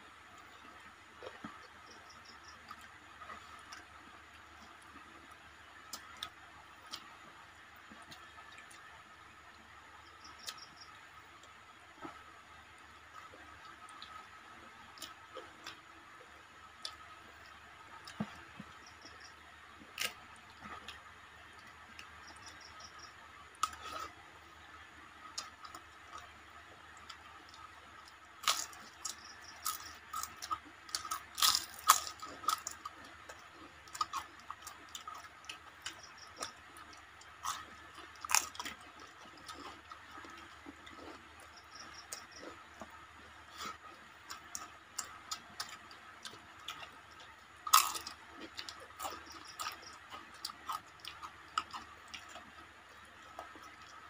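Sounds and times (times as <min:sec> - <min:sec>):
chewing: 0:00.4 - 0:07.2, 0:13.1 - 0:24.2, 0:25.0 - 0:54.0
sharp crunches of crisp food: 0:28.4 - 0:42.6, 0:43.5 - 0:52.6.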